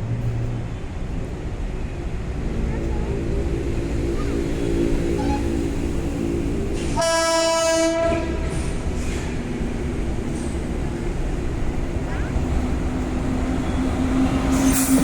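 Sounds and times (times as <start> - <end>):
train rumble: 0.0 - 15.0
locomotive horn blast: 4.2 - 6.0, 6.8 - 8.7.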